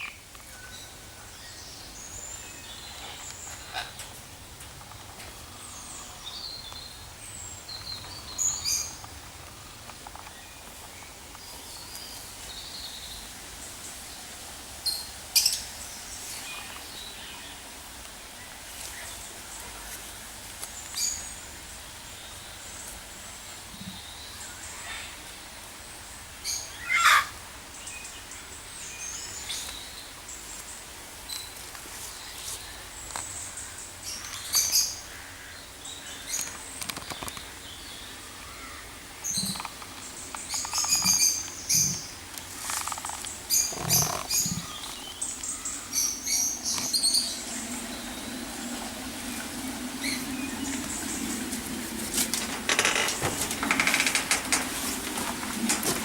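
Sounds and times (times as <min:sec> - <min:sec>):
steady background hiss: 0:00.0 - 0:56.0
birds chirping and calling: 0:26.4 - 0:30.0, 0:33.1 - 0:56.0.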